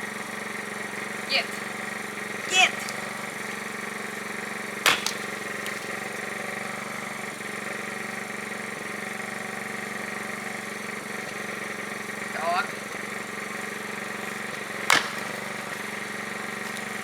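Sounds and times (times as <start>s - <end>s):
generator engine humming: 0.0s - 17.0s
axe striking wood: 4.7s - 6.4s, 12.8s - 17.0s.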